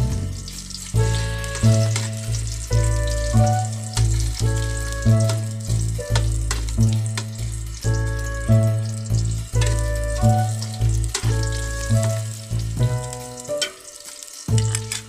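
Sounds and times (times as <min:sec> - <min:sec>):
food sizzling in hot oil: 0:00.0 - 0:15.0
spoon stirring in metal pot: 0:01.1 - 0:02.6.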